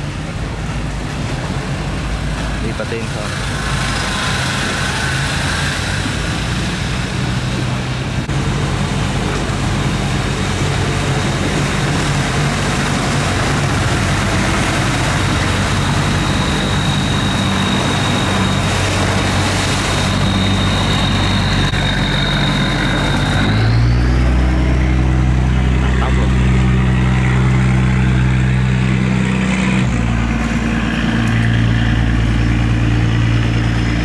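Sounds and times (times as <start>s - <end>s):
boat engine running: 0.0s - 34.0s
thin high whine: 12.4s - 34.0s.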